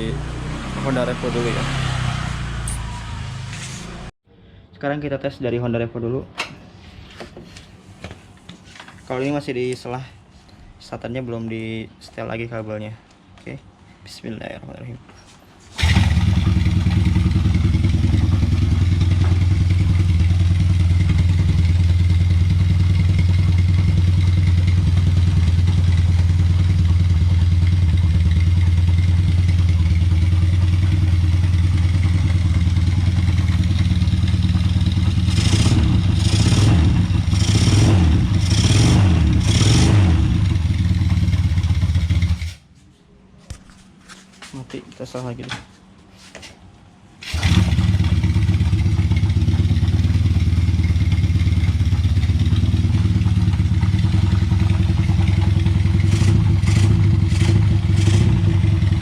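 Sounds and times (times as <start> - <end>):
motorcycle engine rumbling: 0.0 - 4.2, 15.8 - 42.6, 47.2 - 59.0
motorcycle throttle blips: 15.8 - 42.2.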